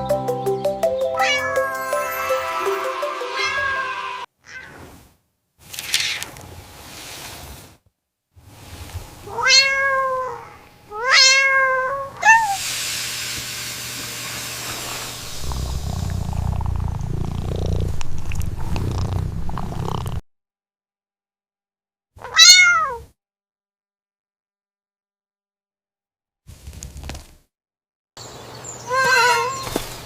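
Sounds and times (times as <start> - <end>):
cat chirp: 1.2 - 1.6, 22.2 - 23.0, 28.9 - 29.7
cat meowing: 1.2 - 1.6, 3.4 - 4.8, 9.3 - 12.6, 22.2 - 23.1, 28.9 - 29.7
hissing noise: 1.9 - 4.3, 12.6 - 20.2
cat purring: 15.1 - 20.2.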